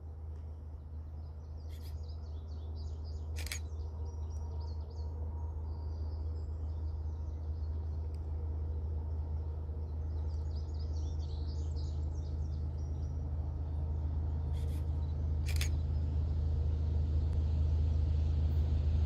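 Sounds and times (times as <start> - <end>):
diesel locomotive rumble: 0.0 - 19.0
birds chirping: 1.0 - 5.0, 9.9 - 16.1
sharp clicks: 3.4 - 3.7, 15.5 - 15.8.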